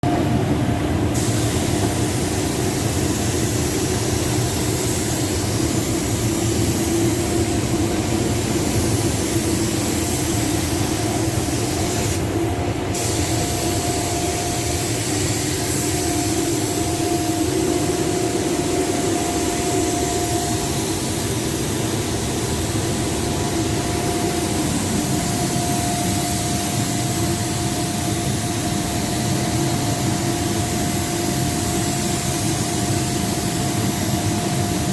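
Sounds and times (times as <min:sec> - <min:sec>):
steady mechanical hum: 0:00.0 - 0:34.9
paint spray gun hissing: 0:01.1 - 0:34.9.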